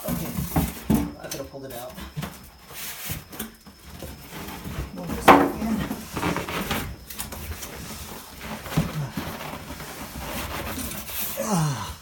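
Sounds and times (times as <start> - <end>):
cardboard rustling and scraping: 0.0 - 11.4
person grunting: 11.4 - 12.0.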